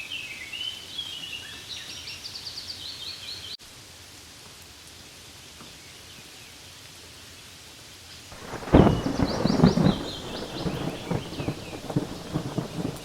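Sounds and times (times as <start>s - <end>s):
light rain on leaves: 0.0s - 13.0s
thunder clap rumbling: 8.4s - 13.0s.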